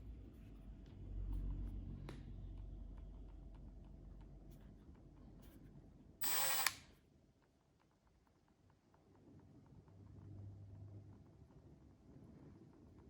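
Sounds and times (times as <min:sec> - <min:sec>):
impact driver motor whine: 0:06.2 - 0:06.8.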